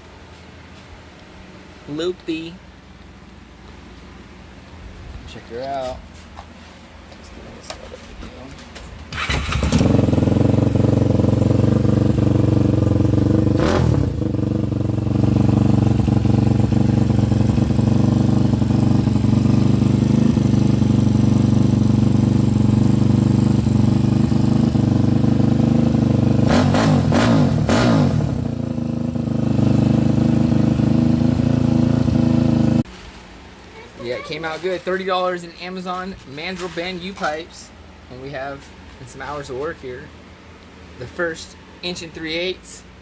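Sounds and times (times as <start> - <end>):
small engine idling and revving: 9.2 - 32.8.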